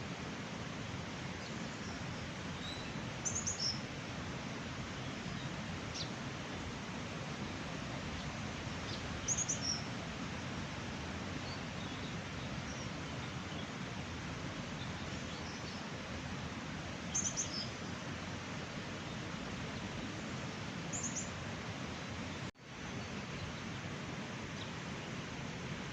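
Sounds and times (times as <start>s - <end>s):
small bird chirping: 2.6s - 3.8s, 17.1s - 17.8s.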